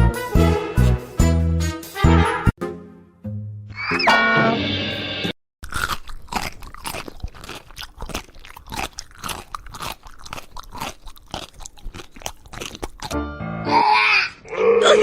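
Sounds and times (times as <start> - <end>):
pet chewing crunchy food: 5.6 - 13.2.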